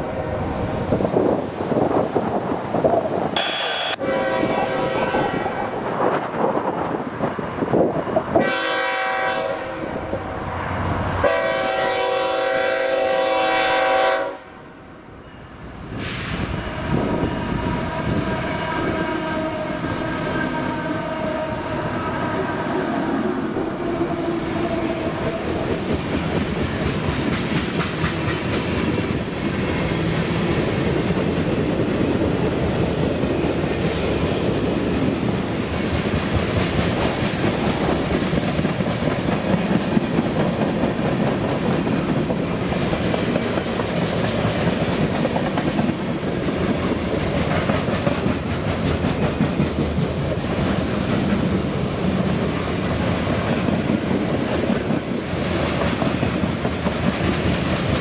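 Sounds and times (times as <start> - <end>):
freight train rumbling past: 0.0 - 58.0
locomotive air horn blasts: 3.4 - 5.8, 8.4 - 10.1, 11.2 - 14.6, 16.8 - 25.4.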